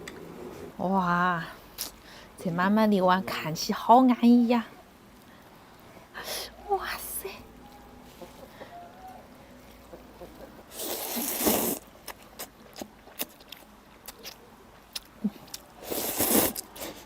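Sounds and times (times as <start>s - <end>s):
noodles being slurped: 10.7s - 14.4s, 15.4s - 17.0s.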